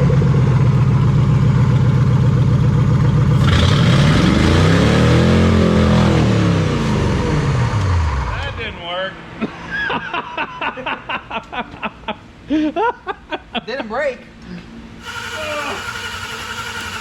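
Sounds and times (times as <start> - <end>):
car engine revving: 3.2 - 8.8.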